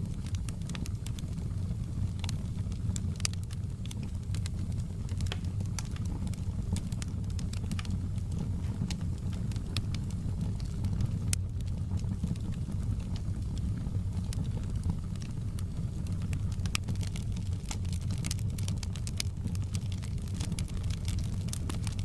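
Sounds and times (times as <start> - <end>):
fire popping and snapping: 0.0 - 22.0
wood fire crackling: 0.0 - 22.0.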